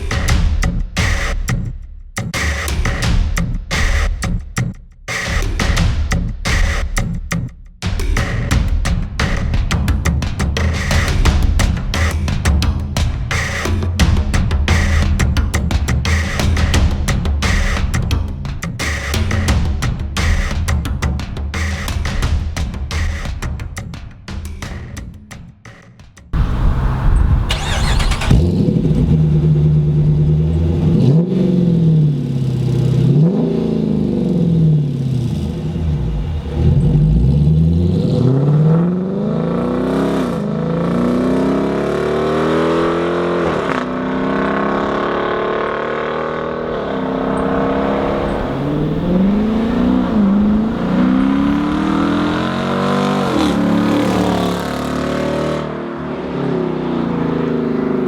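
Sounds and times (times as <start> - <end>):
car engine revving: 26.4 - 58.0.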